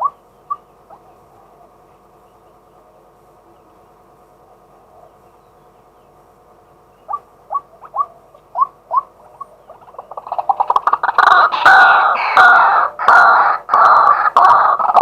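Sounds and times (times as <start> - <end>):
waterhen calling: 0.0 - 1.5, 7.0 - 15.0
faint steady hum: 0.0 - 15.0.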